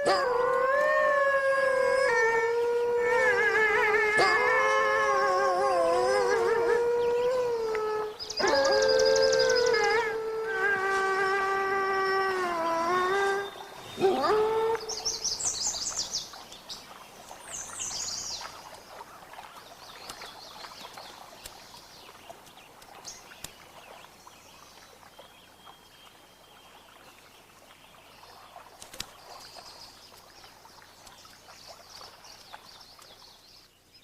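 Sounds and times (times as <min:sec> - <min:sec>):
faint outdoor ambience: 0:00.0 - 0:34.0
small birds chirping: 0:12.5 - 0:34.0.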